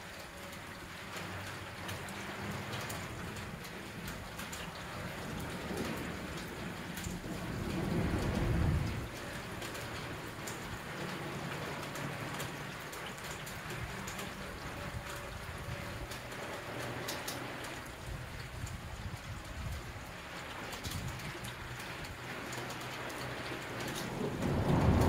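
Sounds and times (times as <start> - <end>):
steady rainfall: 0.0 - 25.0
low thunder roll: 5.2 - 10.2, 23.8 - 25.0.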